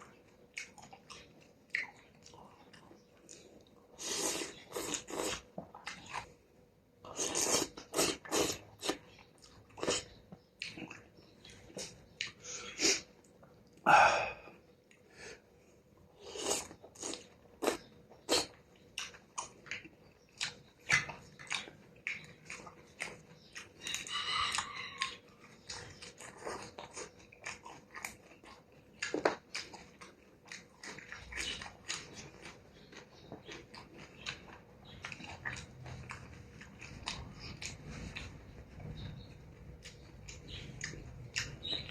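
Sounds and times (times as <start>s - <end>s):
person chewing noisily: 0.0s - 41.9s
mouth smacks and clicks: 33.4s - 41.9s.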